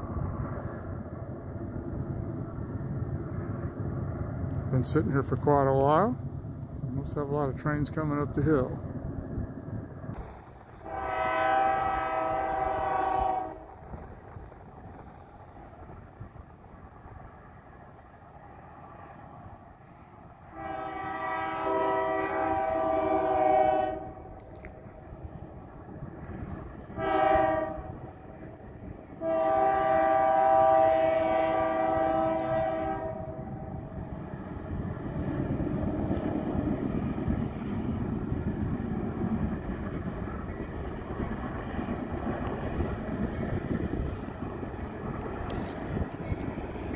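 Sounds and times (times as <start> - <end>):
low rumble: 0.0 - 29.8
locomotive air horn blast: 10.8 - 13.7, 20.5 - 24.3, 26.4 - 28.0, 29.2 - 33.7.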